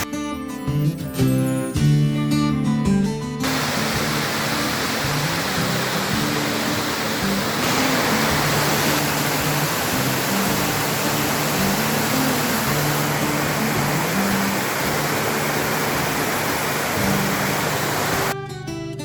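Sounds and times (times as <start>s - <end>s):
guitar music: 0.0s - 19.0s
waterfall rushing: 3.4s - 18.4s.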